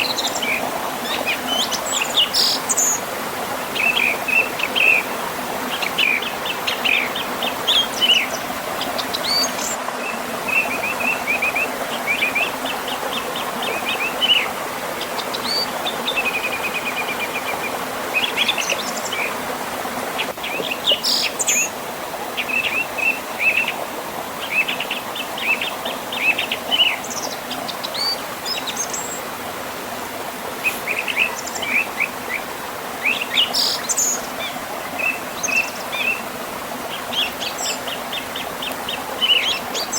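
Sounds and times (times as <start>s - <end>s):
river flowing: 0.0s - 39.9s
birds chirping and trilling: 5.7s - 19.4s, 30.6s - 39.9s.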